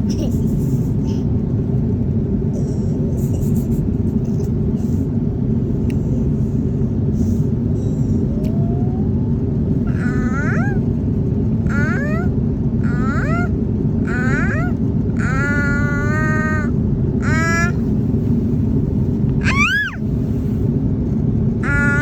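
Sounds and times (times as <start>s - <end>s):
airliner cabin rumble: 0.0s - 22.0s
child's voice: 9.9s - 10.9s, 11.6s - 17.8s, 19.4s - 20.0s, 21.6s - 22.0s.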